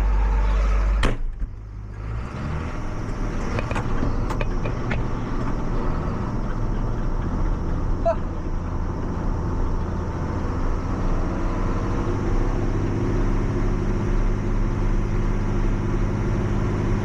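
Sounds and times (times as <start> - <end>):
tractor engine idling: 2.8 - 11.4.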